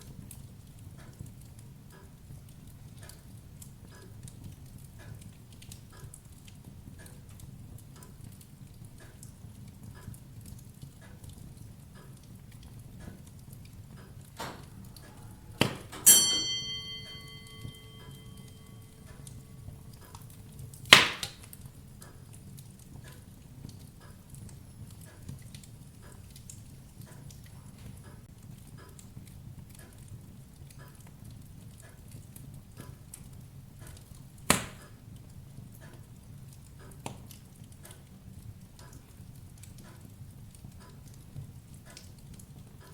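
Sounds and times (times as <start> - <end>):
wood fire crackling: 0.0 - 42.9
loud metallic clang: 14.4 - 19.7, 20.9 - 21.4
sharp knock: 20.9 - 21.4.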